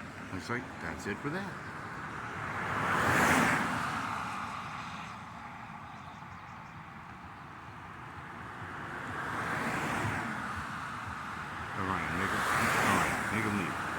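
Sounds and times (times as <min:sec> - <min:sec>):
low traffic rumble: 0:00.0 - 0:04.4, 0:06.6 - 0:13.9
vehicle passing by: 0:11.9 - 0:13.9.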